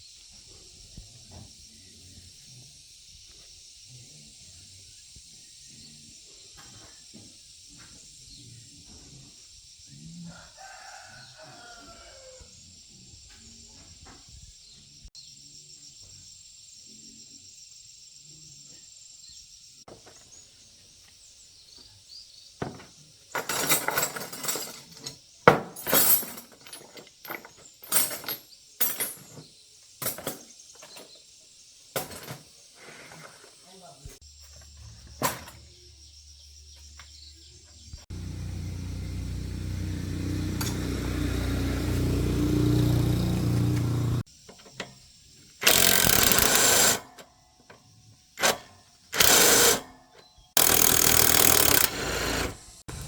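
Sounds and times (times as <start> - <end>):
high insect drone: 0.0 - 21.7, 33.6 - 44.4
rooster crowing: 10.2 - 12.6
metal parts clacking and knocking: 23.4 - 29.4, 45.6 - 47.2, 48.4 - 49.8, 50.6 - 52.5.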